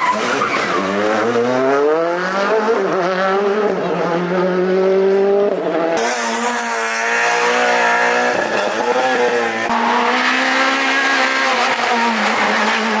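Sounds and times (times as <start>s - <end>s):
car engine at high revs: 0.0s - 13.0s.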